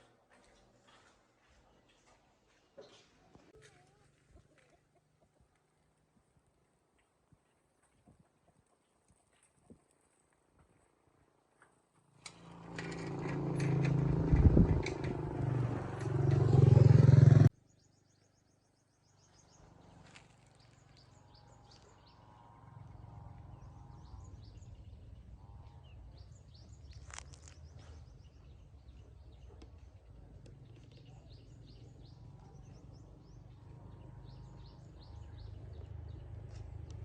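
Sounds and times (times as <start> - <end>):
birds chirping: 14.8 - 37.0.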